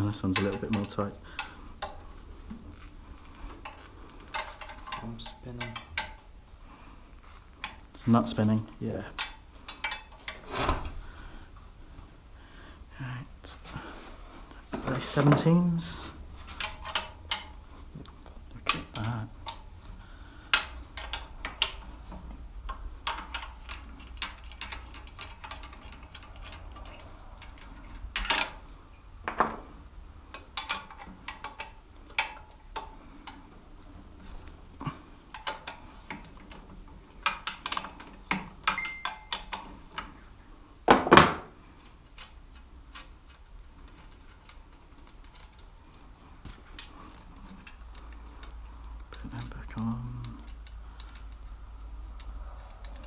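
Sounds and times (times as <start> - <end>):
metal tools clinking on metal: 0.0 - 2.0, 3.6 - 6.3, 15.0 - 17.6, 18.6 - 19.7, 20.5 - 21.9, 22.6 - 29.6, 34.8 - 40.2
tools clattering: 3.6 - 6.3, 9.1 - 10.8, 14.7 - 17.6, 20.5 - 33.5, 34.1 - 40.2.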